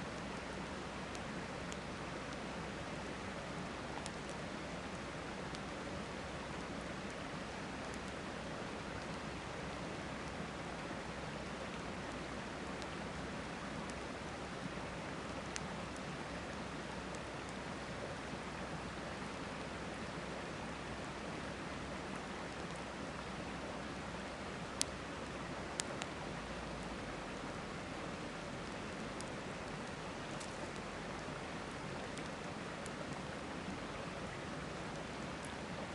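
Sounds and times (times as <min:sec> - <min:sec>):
campfire crackling and popping: 0:03.4 - 0:08.3, 0:15.3 - 0:17.8, 0:24.6 - 0:33.4, 0:34.8 - 0:35.7.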